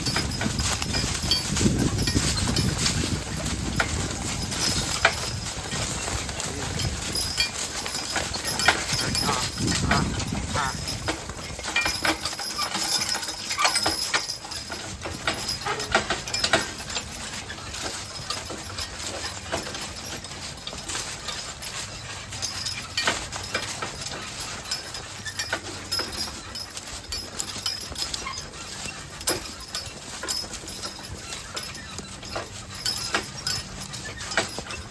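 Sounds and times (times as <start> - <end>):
horse hoofbeats clopping: 0.0 - 34.9.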